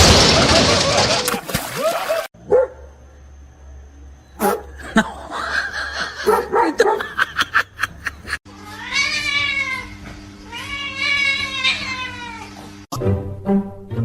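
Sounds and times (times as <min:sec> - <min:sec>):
cat yowling: 0:08.6 - 0:12.6.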